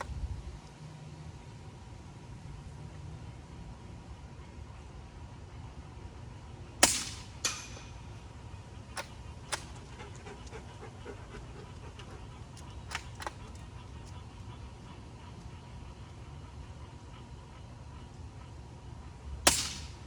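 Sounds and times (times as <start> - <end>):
suppressed rifle shot crack: 6.8 - 7.8, 19.5 - 20.0.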